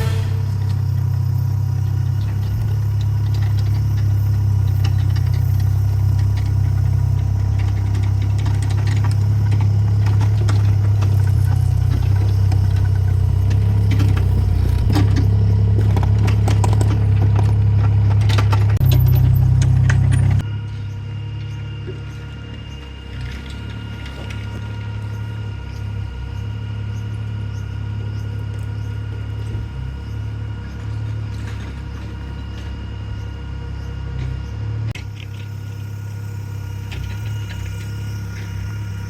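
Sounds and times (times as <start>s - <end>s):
knocks and rattles: 0.0s - 20.4s
diesel engine running: 0.0s - 39.0s.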